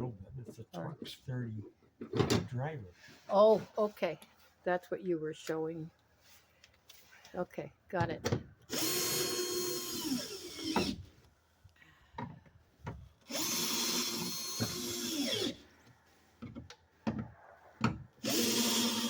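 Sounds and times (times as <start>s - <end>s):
power drill whine: 8.7s - 11.0s, 13.3s - 15.6s, 18.2s - 19.0s.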